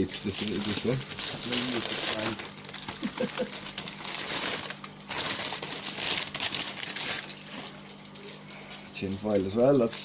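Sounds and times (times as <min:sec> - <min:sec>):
wrapping paper crinkling: 0:00.0 - 0:10.0.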